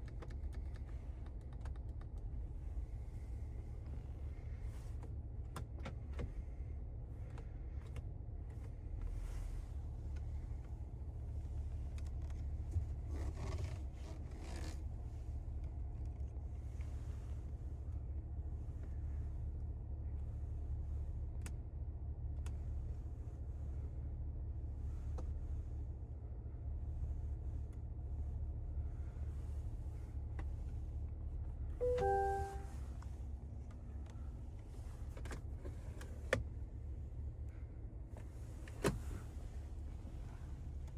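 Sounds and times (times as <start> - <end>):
car cabin rumble: 31.7 - 33.2, 38.1 - 40.9
short electronic chime: 31.8 - 32.7.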